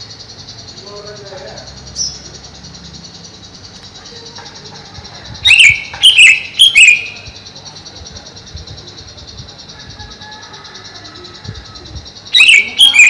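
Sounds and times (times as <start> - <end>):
high insect trill: 0.0 - 13.0
bird calling sharply: 5.4 - 7.3, 12.3 - 13.0.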